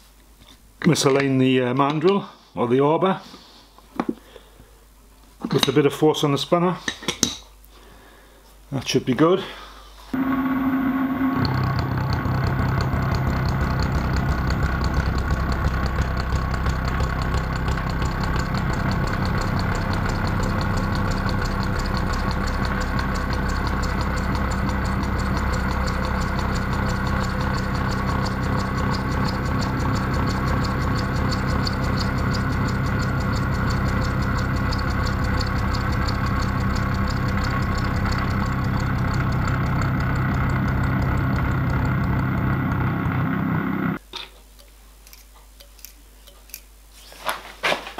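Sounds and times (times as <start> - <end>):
milling machine motor hum: 10.2 - 44.0.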